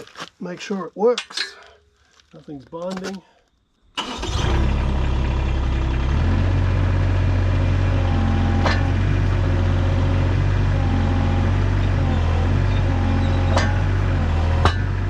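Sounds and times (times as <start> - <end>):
excavator engine running: 4.0 - 15.0
sharp clack: 13.4 - 13.9.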